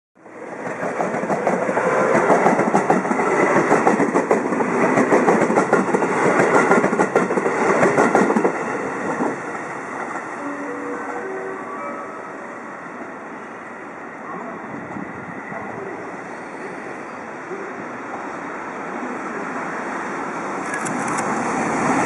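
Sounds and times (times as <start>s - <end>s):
train wheels clattering over rail joints: 0.7s - 8.6s.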